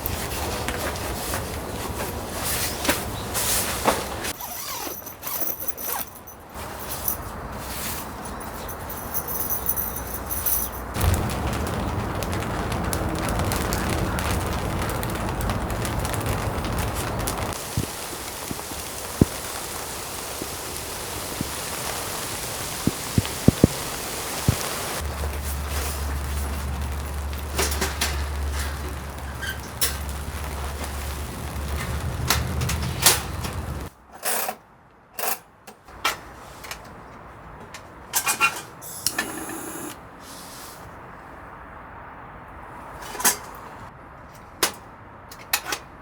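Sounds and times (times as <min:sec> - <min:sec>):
electric air pump humming: 0:16.3 - 0:27.6.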